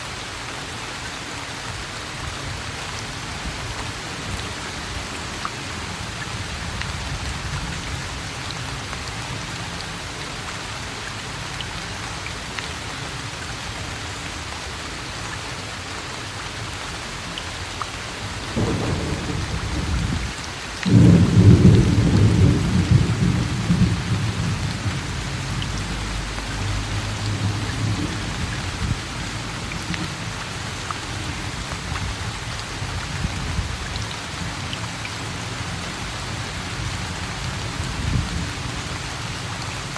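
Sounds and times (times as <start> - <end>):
steady rain falling: 0.0 - 39.9
thunder rumbling: 18.5 - 30.3.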